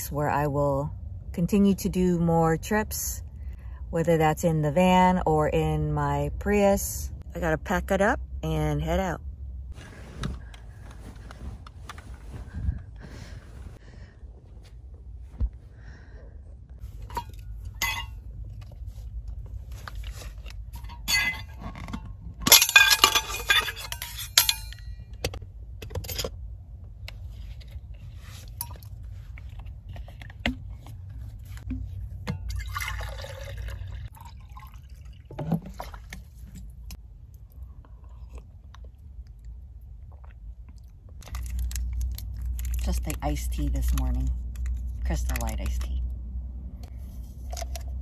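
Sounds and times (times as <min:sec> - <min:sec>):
rustling of belongings: 0:09.8 - 0:15.7, 0:16.8 - 0:32.3, 0:41.1 - 0:46.0
containers clinking: 0:17.0 - 0:18.3, 0:19.8 - 0:25.1.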